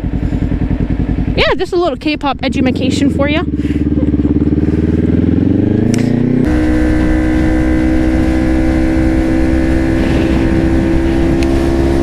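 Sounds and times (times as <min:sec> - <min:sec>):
motorcycle engine accelerating: 0:00.0 - 0:12.0
wind rushing: 0:06.5 - 0:12.0.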